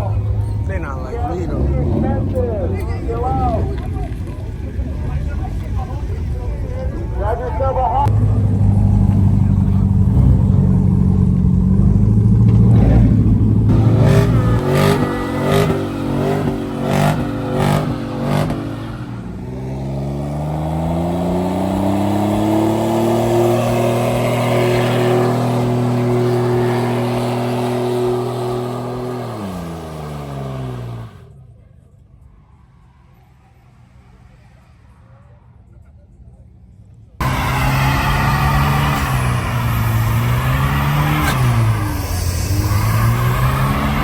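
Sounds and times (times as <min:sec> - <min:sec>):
car engine revving hard: 0:08.1 - 0:31.3, 0:37.2 - 0:44.0.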